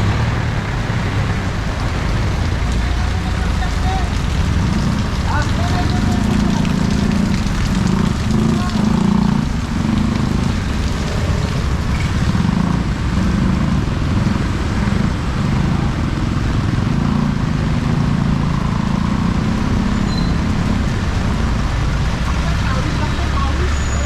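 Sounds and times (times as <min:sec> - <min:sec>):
vehicle engines running: 0:00.0 - 0:24.0
heavy rain hiss: 0:00.2 - 0:18.1.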